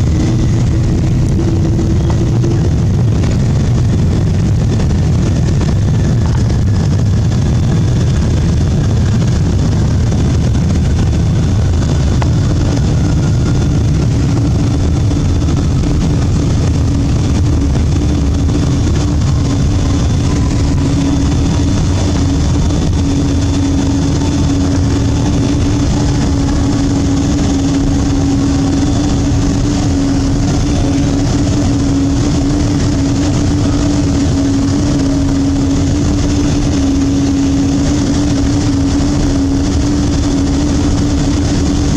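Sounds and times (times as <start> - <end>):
faint whines falling in pitch: 0.0 - 4.6
aircraft engines and airflow rumble: 0.0 - 41.9
constant hum: 0.0 - 41.9.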